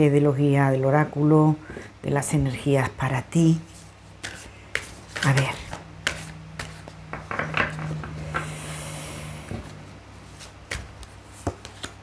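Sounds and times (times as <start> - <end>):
steady low hum: 0.0 - 11.7
cards tapping and slapping: 4.2 - 8.5, 10.4 - 12.0.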